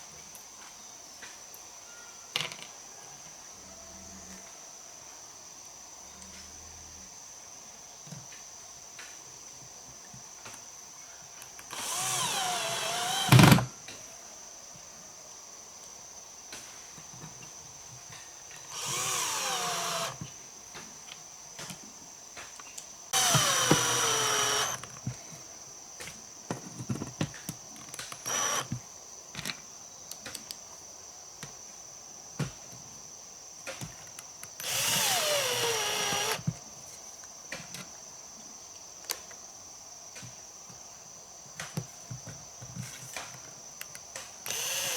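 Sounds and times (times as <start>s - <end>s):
power drill whining: 11.7s - 13.7s, 18.7s - 20.3s, 23.2s - 24.9s, 28.2s - 28.7s, 34.6s - 36.5s, 44.4s - 44.9s.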